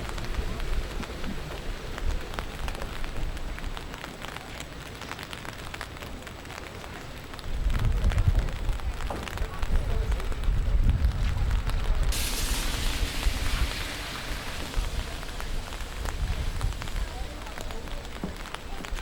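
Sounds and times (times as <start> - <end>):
heavy rain falling: 0.0 - 19.0
low rumble: 12.1 - 18.0
sharp raindrop ticks: 12.1 - 19.0.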